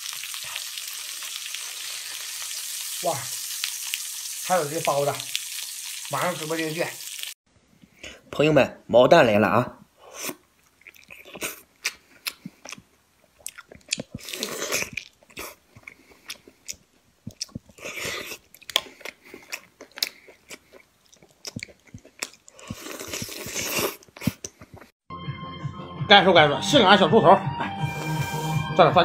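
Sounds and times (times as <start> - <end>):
chewing with wet crunches: 10.6 - 24.9.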